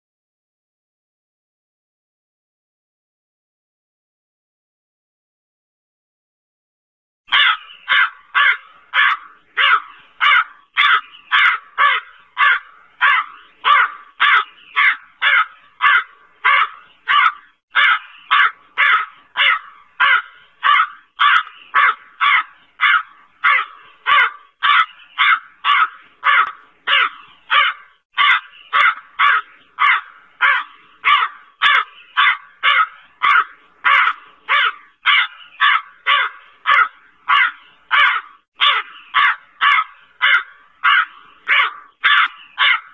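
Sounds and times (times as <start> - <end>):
crow cawing: 7.3 - 42.9.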